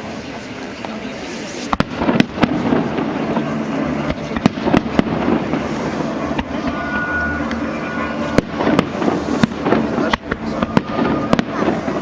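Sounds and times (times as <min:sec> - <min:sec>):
fireworks bursting: 0:00.0 - 0:12.0
steady background noise: 0:00.0 - 0:12.0.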